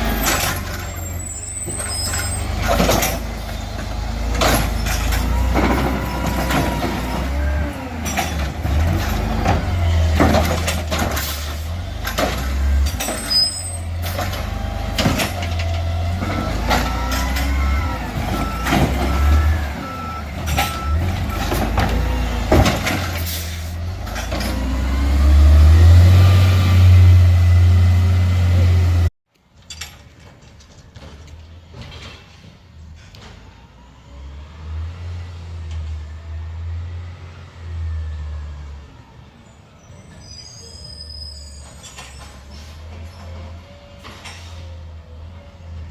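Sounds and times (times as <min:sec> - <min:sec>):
garbage truck engine rumble: 0:00.0 - 0:29.1
metal clanks and bangs: 0:01.6 - 0:24.8
engine revving: 0:02.4 - 0:13.2, 0:13.8 - 0:29.1.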